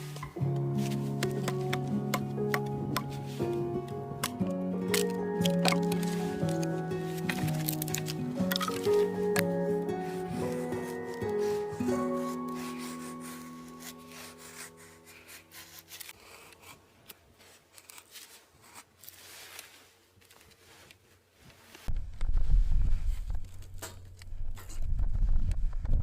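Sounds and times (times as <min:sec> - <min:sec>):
background music: 0:00.0 - 0:16.0
soft scraping and rubbing: 0:10.2 - 0:25.4
wind rumble on microphone: 0:21.9 - 0:23.7, 0:24.3 - 0:26.0.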